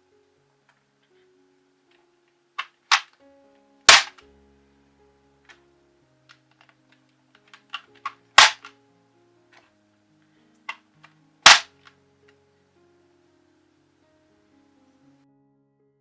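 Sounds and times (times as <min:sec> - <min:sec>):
faint background music: 0:00.0 - 0:16.0
small clicks: 0:02.6 - 0:03.2, 0:03.9 - 0:04.2, 0:07.5 - 0:08.7, 0:11.4 - 0:11.8.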